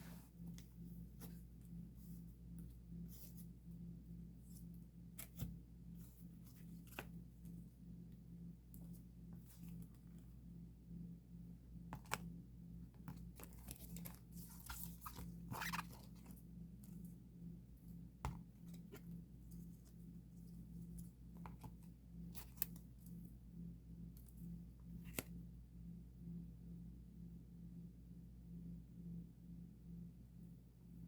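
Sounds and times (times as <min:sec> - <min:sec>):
steady low hum: 0:00.0 - 0:31.0
plastic sleeves rustling and crinkling: 0:13.1 - 0:17.1.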